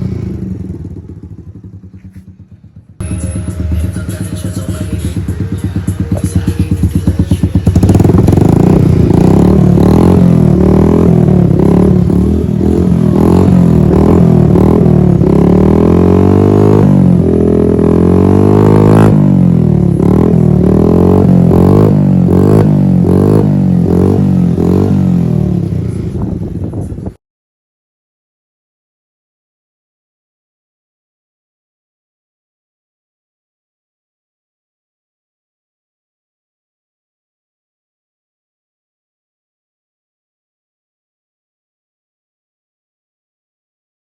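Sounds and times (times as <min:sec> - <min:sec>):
motorcycle engine revving: 0:00.0 - 0:27.2.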